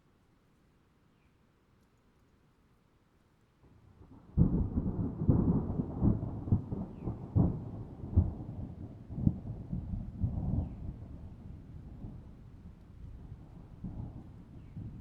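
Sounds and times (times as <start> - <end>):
rain: 2.4 - 15.0
thunder rumbling and cracking: 4.2 - 12.2.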